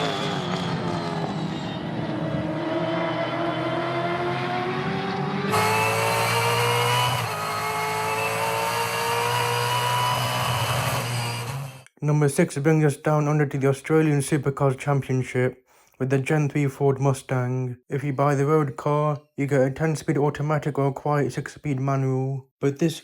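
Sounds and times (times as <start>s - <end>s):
gearbox whine: 0.0s - 3.8s
race car engine pulling hard: 0.0s - 11.8s.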